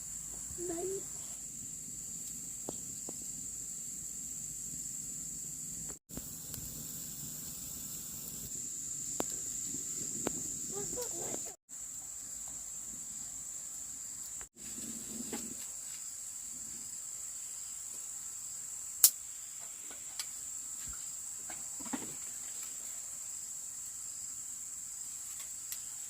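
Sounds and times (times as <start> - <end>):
high-pitched insect drone: 0.0 - 14.8.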